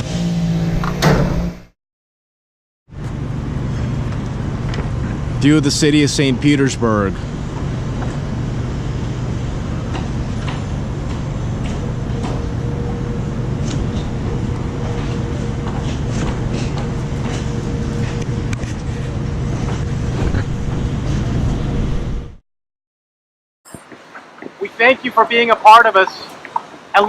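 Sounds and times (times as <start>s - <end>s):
construction machinery droning: 2.9s - 22.4s.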